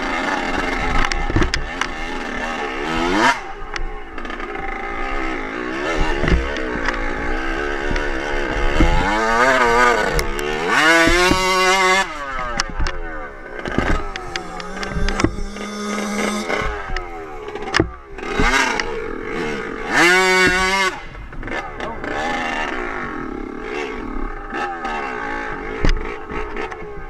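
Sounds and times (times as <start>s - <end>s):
dirt bike engine revving: 0.0s - 27.0s
sharp knocks and clatter: 7.8s - 13.0s, 13.6s - 18.9s, 20.3s - 21.5s.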